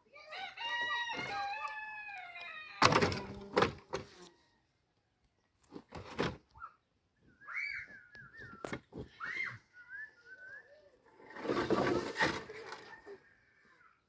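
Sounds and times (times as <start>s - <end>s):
rooster crowing: 0.2s - 2.9s.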